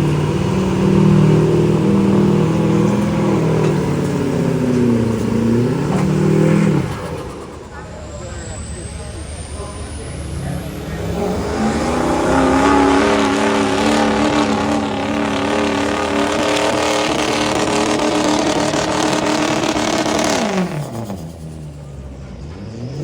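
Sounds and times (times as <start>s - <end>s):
engine revving hard: 0.0s - 23.0s.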